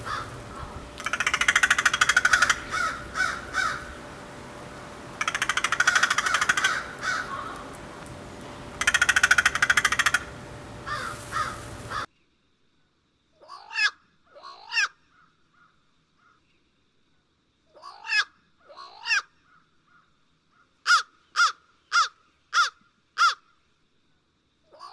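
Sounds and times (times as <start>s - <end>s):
crow cawing: 0.0s - 12.1s
outdoor hiss: 0.0s - 13.2s.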